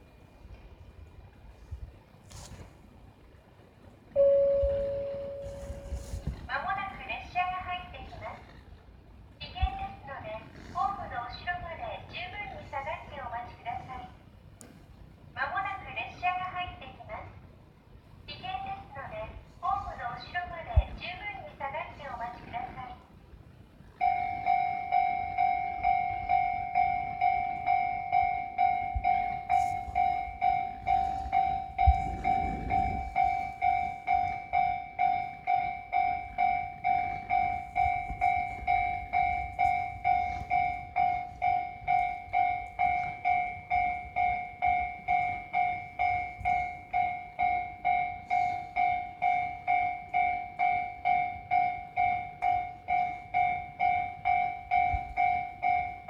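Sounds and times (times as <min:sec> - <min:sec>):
railway warning bell ringing: 0:04.1 - 0:08.6, 0:09.5 - 0:14.3, 0:23.8 - 0:56.0.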